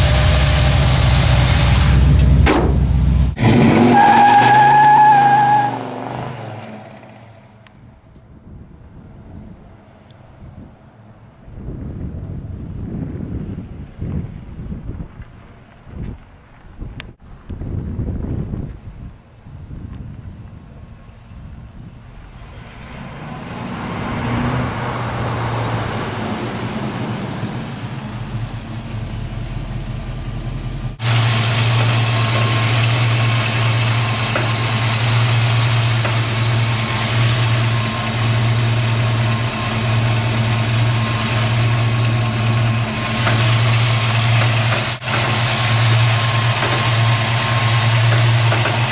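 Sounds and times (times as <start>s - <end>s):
pickup engine idling: 27.7s - 48.9s.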